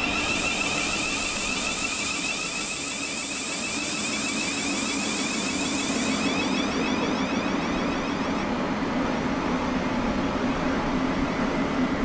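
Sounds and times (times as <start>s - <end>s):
hiss: 0.0s - 8.2s
electric train whine: 0.0s - 12.0s.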